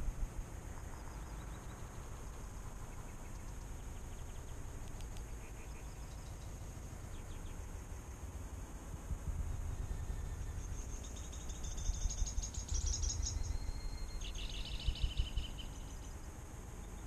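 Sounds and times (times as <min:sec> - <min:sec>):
faint high bird chirps: 0:00.9 - 0:02.1, 0:02.8 - 0:07.9, 0:09.7 - 0:17.0.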